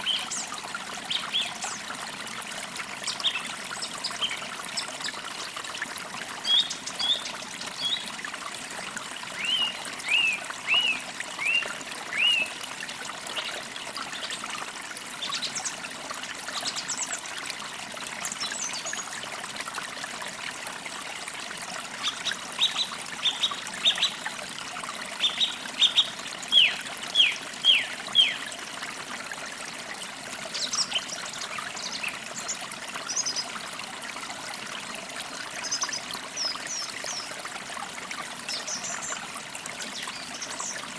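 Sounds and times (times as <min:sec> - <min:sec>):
stream trickling: 0:00.0 - 0:40.9.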